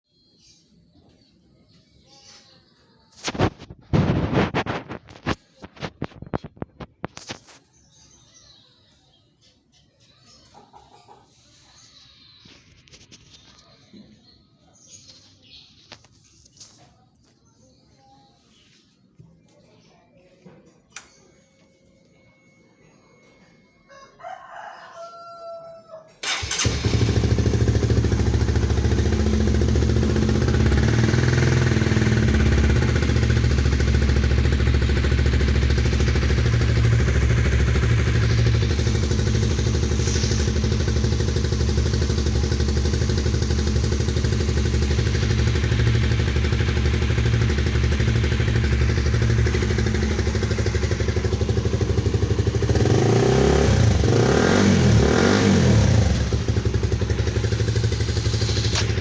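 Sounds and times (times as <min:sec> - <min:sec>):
faint rooster crowing: 0:10.4 - 0:12.6, 0:23.8 - 0:26.2
motorcycle engine starting and idling: 0:26.2 - 0:59.0.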